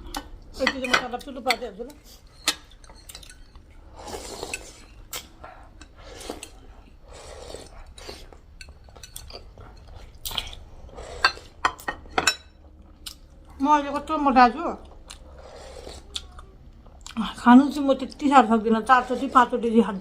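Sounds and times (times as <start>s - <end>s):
cutlery scraping: 2.2s - 3.6s, 11.1s - 12.5s
cutlery clinking on dishes: 2.3s - 3.6s.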